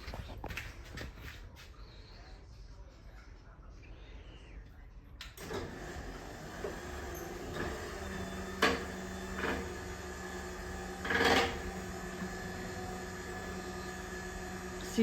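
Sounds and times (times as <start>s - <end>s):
garage door opener humming: 5.4s - 15.0s.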